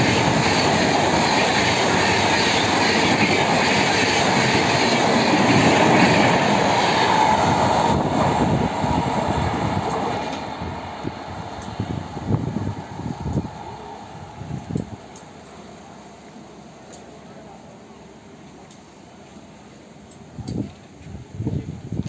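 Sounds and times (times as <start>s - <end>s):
train rushing past: 0.0s - 15.8s.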